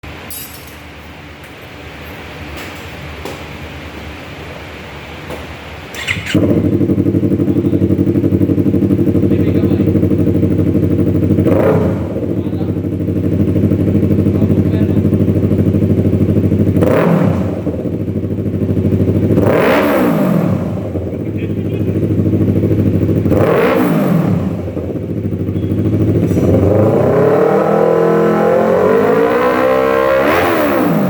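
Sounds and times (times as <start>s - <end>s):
motorcycle engine idling: 3.7s - 27.1s.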